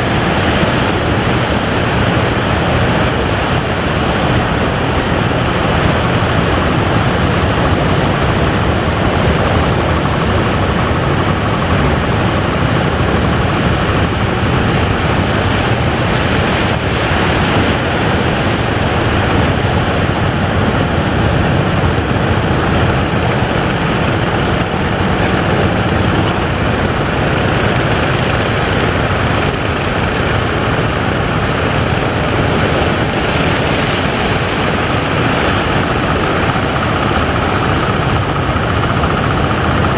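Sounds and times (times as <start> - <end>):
wind buffeting microphone: 0.0 - 39.9
surf breaking: 13.2 - 39.9.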